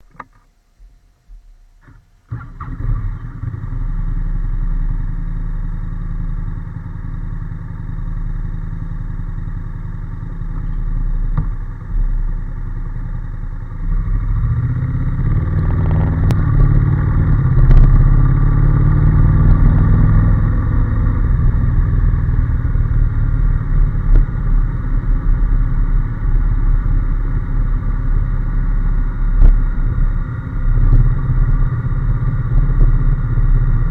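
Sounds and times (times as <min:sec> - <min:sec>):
motorcycle engine idling: 0:01.8 - 0:33.9.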